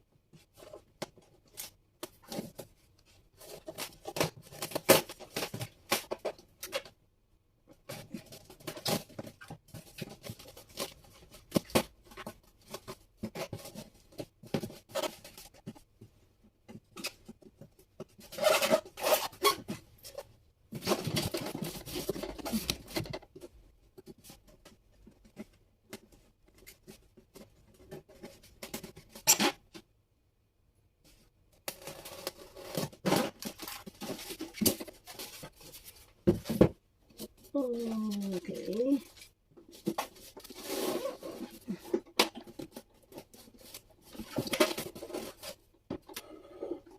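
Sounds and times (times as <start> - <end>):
packaging rustling and crinkling: 31.7 - 46.2.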